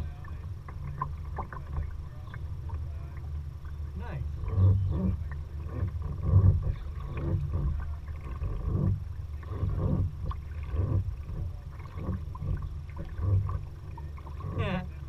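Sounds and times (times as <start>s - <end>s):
paddle strokes splashing: 0.0s - 15.0s
steady low rumble: 0.0s - 15.0s.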